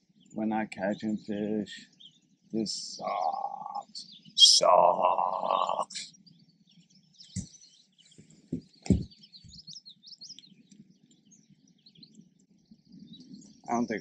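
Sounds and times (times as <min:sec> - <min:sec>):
songbirds chirping: 0:00.0 - 0:14.0
dull knocks: 0:08.5 - 0:09.6.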